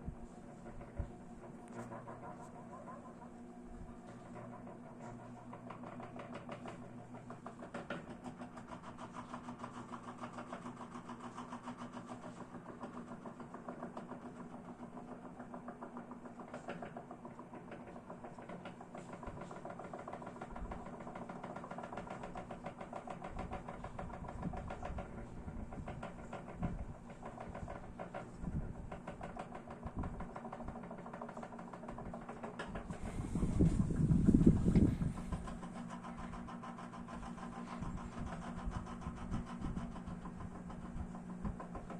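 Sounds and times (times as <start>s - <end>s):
electric fan running: 0.0s - 41.9s.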